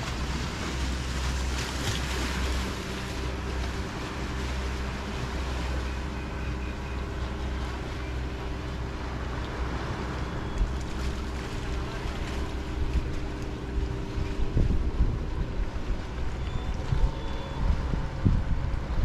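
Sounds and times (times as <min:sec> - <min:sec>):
boat motor humming: 0:00.0 - 0:19.0
waves washing: 0:00.0 - 0:19.0
wind buffeting microphone: 0:10.6 - 0:19.0.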